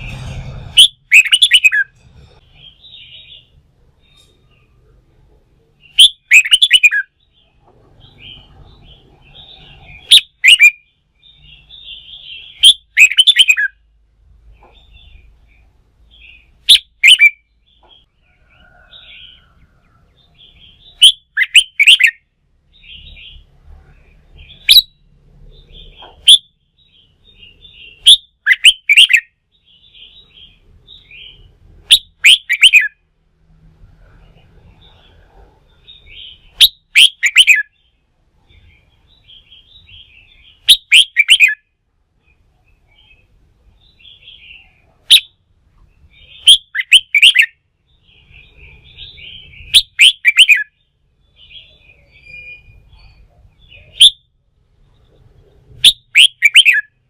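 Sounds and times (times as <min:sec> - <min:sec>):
bird singing rippling phrases: 0:00.0 - 0:33.1, 0:34.0 - 0:57.0
bird chattering calls: 0:00.8 - 0:02.0, 0:05.9 - 0:07.1, 0:11.5 - 0:13.8, 0:27.4 - 0:29.3, 0:30.0 - 0:32.9, 0:36.0 - 0:37.7, 0:38.6 - 0:41.6, 0:48.2 - 0:50.7, 0:55.8 - 0:56.9.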